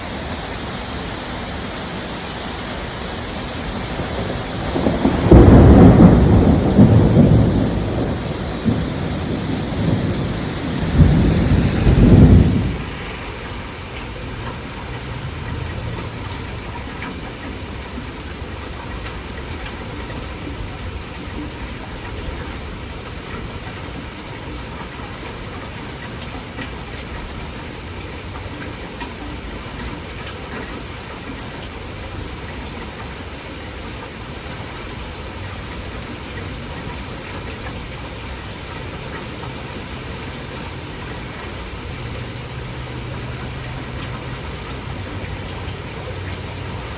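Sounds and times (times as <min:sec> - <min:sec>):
low rumble: 0:00.0 - 0:13.4
heavy rain falling: 0:00.0 - 0:46.9.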